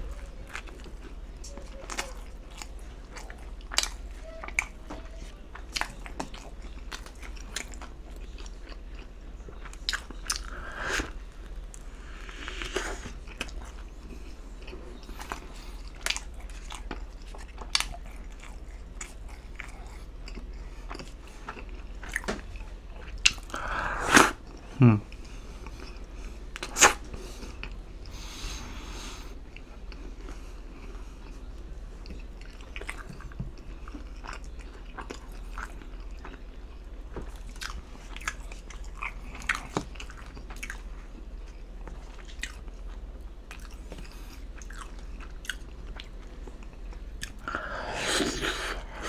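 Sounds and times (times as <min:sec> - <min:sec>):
person chewing food: 0:00.0 - 0:49.0
bite and crunch: 0:26.6 - 0:27.8.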